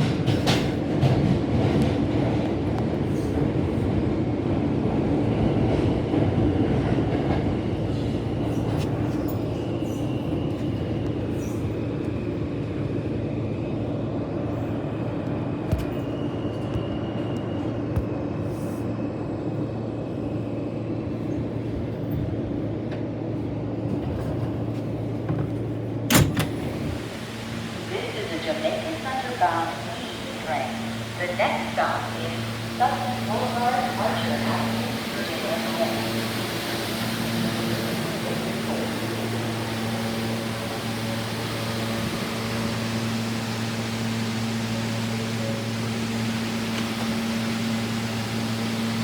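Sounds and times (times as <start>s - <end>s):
subway car hum and rumble: 0.0s - 49.0s.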